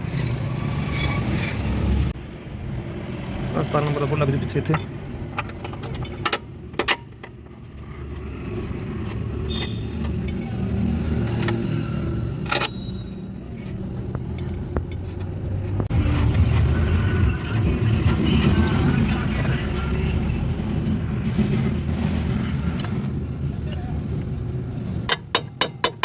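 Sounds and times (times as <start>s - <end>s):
low vehicle rumble: 0.0s - 25.6s
metallic clinks of tools and bolts: 14.0s - 15.4s.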